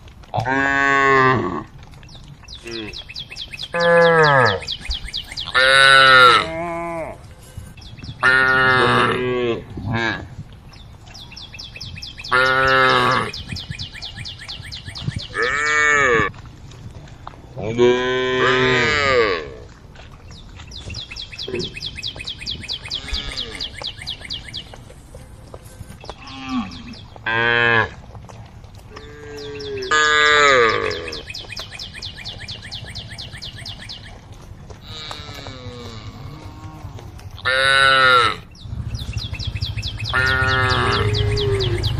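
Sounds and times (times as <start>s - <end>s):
cow mooing: 3.7s - 4.7s, 5.5s - 7.2s, 8.2s - 10.2s, 17.7s - 19.6s, 29.0s - 31.3s, 40.0s - 41.9s.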